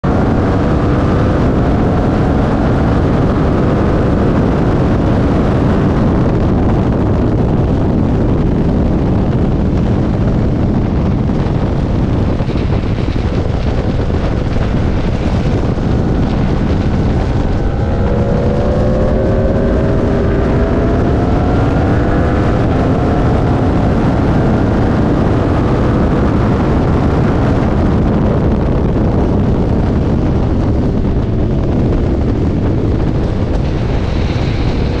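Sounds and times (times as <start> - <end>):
motorcycle engine revving: 0.0 - 35.0
wind rush and buffeting: 0.0 - 35.0.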